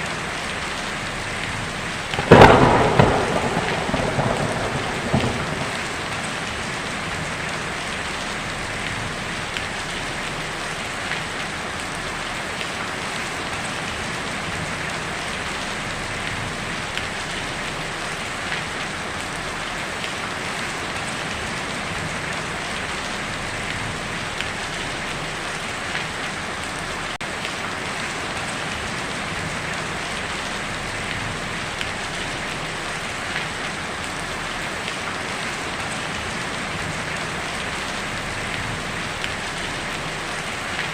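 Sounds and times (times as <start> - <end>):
heavy rain on a tin roof: 0.0 - 40.9
single raindrops: 2.1 - 7.6.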